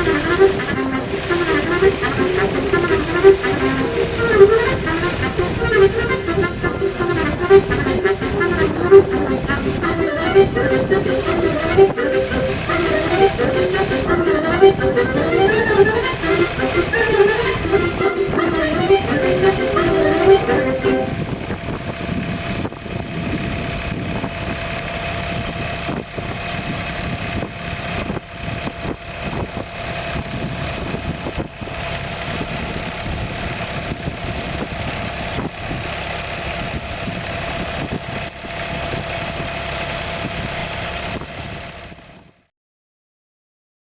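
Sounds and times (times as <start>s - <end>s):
constant whine: 0.0s - 31.8s
tractor diesel engine running: 0.0s - 42.4s.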